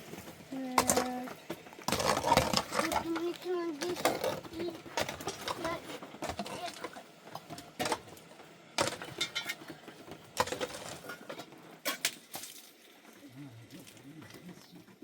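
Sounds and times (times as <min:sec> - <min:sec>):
hard objects knocking and clinking: 0:00.6 - 0:12.1.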